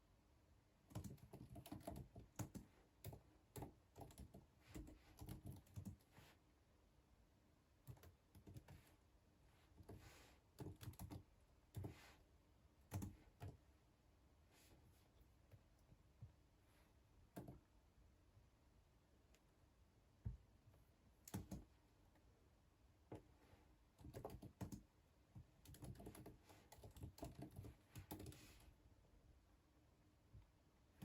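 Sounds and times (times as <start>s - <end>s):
keyboard typing: 0.9s - 6.1s, 7.8s - 8.9s, 10.6s - 12.0s, 12.8s - 13.6s, 17.3s - 17.7s, 21.2s - 21.7s, 24.0s - 24.9s, 25.6s - 28.6s.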